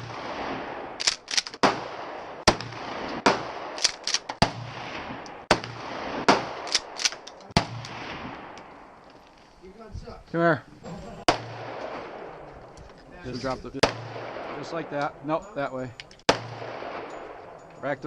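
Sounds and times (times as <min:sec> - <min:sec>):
gunshots with echo: 0:00.0 - 0:08.9, 0:11.3 - 0:12.6, 0:13.8 - 0:15.4, 0:16.2 - 0:18.0.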